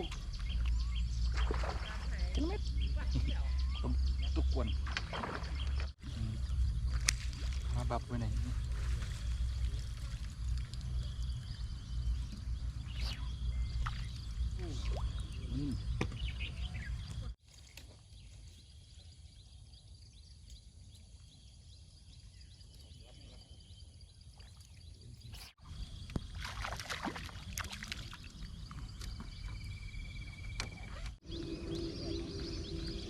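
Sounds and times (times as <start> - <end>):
low rumble of wind: 0.0 - 17.4, 27.3 - 33.0.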